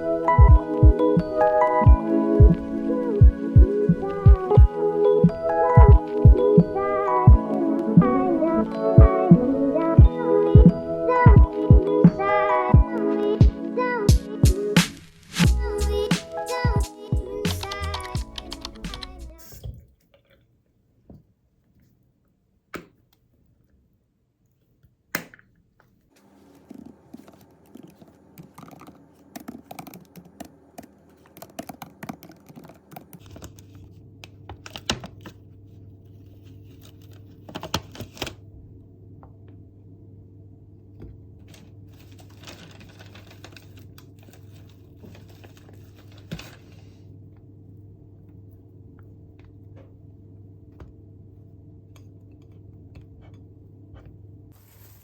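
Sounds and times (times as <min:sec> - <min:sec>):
computer keyboard typing: 0:16.1 - 0:19.5, 0:26.7 - 0:33.7.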